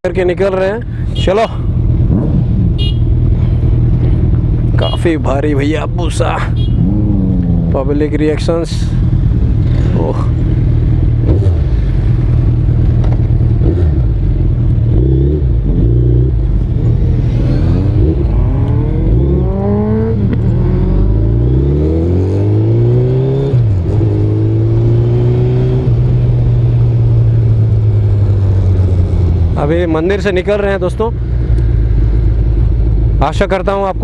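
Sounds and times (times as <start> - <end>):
motorbike engine accelerating: 6.6 - 8.0, 9.0 - 29.9.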